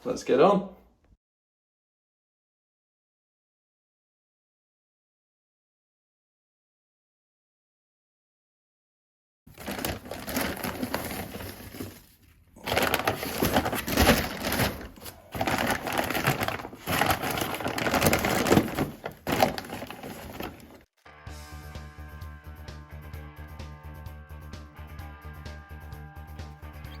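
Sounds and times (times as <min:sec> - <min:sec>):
rubble crunching and scraping: 0:09.5 - 0:20.9.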